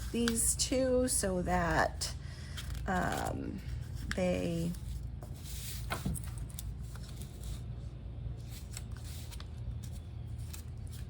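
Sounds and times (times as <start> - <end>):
paper rustling and crinkling: 2.5 - 7.8, 8.4 - 11.0.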